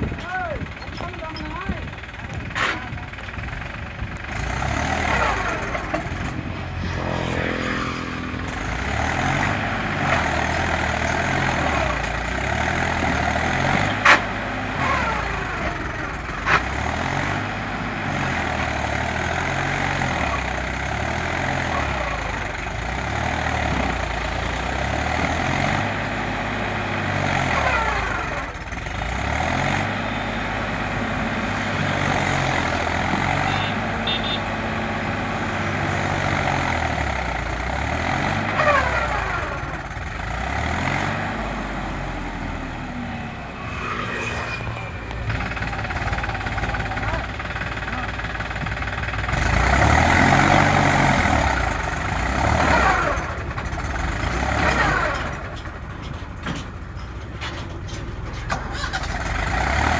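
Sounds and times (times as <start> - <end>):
tractor engine revving under load: 0.0 - 56.8, 58.4 - 59.9.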